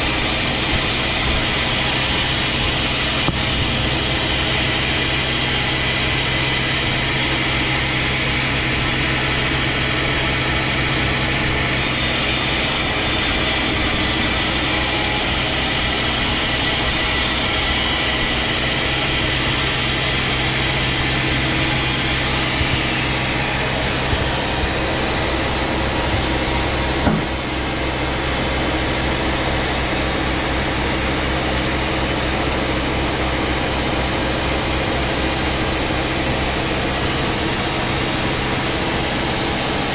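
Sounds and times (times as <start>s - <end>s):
chainsaw cutting log: 0.0s - 38.5s
single knock: 27.0s - 27.4s.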